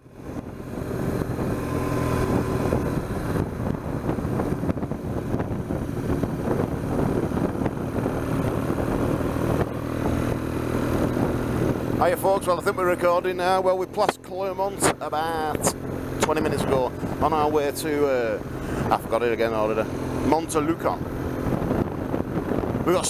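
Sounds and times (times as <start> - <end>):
motorcycle engine running: 0.0 - 23.0
wind and road noise: 0.0 - 23.0.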